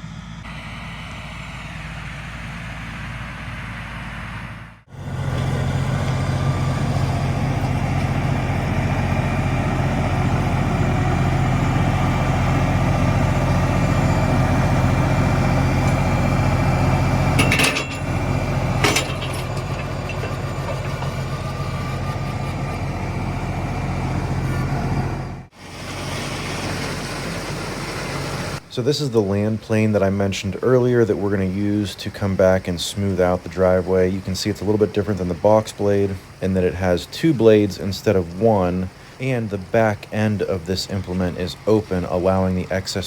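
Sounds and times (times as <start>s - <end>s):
tractor diesel engine running: 0.0s - 43.0s
sharp metallic knocks: 17.4s - 18.1s.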